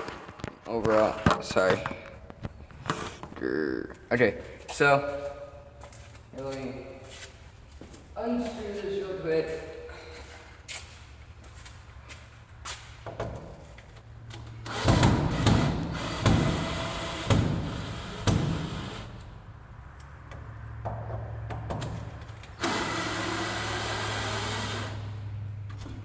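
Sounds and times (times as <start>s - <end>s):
knocks and handling clatter: 0.0s - 3.4s, 20.0s - 22.6s
electric drill whirring: 22.6s - 25.0s.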